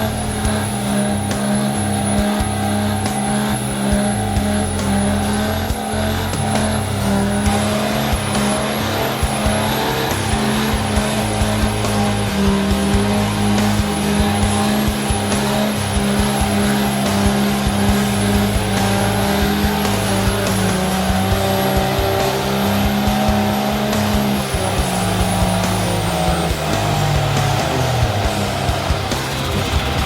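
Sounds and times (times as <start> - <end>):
high whistle: 0.0 - 29.0
vehicle engine revving high: 0.0 - 30.0.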